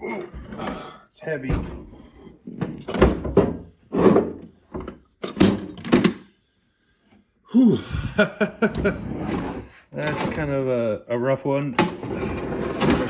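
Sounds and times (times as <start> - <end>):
breathy whew of effort: 7.5 - 8.2.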